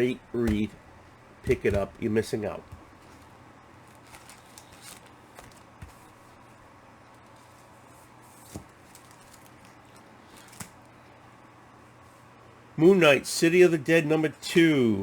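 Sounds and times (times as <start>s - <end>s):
comic books rustling: 0.0s - 6.6s, 7.2s - 11.0s
faint steady hum: 0.0s - 15.0s.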